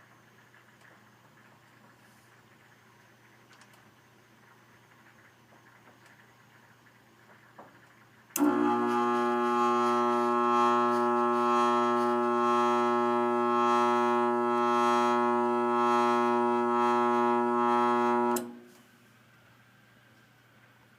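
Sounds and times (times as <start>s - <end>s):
furnace motor buzzing: 8.4s - 18.7s.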